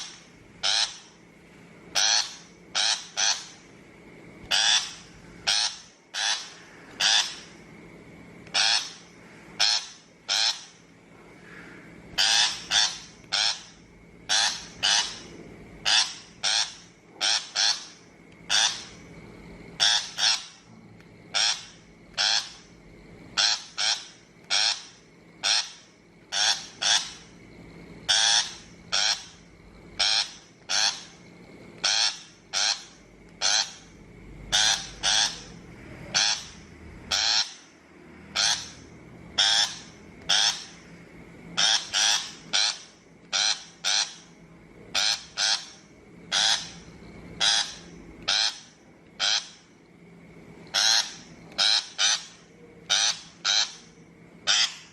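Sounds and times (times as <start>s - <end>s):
bird giving harsh grating calls: 0.0s - 1.2s, 1.9s - 3.6s, 4.5s - 7.6s, 8.5s - 10.8s, 11.5s - 19.0s, 19.8s - 20.7s, 21.3s - 22.7s, 23.3s - 27.3s, 28.1s - 29.4s, 30.0s - 31.2s, 31.8s - 37.7s, 38.3s - 40.8s, 41.6s - 49.7s, 50.7s - 54.9s.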